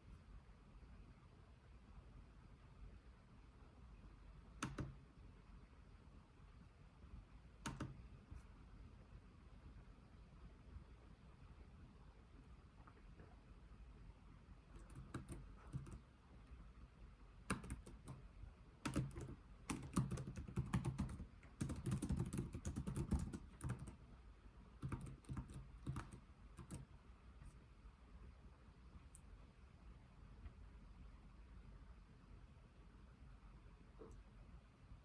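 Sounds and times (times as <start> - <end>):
keyboard key clicks: 4.6 - 5.0, 7.6 - 8.0, 17.5 - 18.2.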